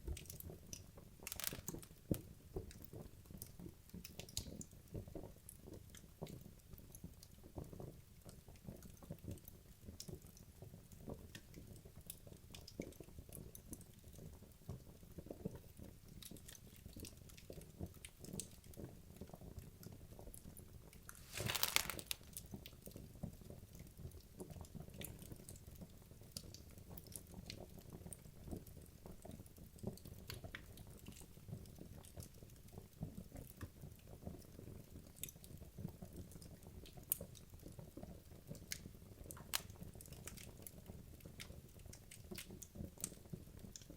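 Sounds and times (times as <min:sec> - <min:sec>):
logs crackling in a fireplace: 0:00.1 - 0:05.3, 0:21.2 - 0:22.5, 0:36.3 - 0:43.9.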